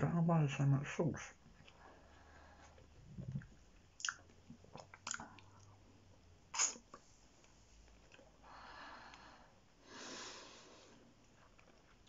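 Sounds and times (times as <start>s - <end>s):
person chewing wetly: 1.5s - 5.9s
wet mouth smacks and clicks: 3.3s - 5.7s, 6.5s - 6.9s.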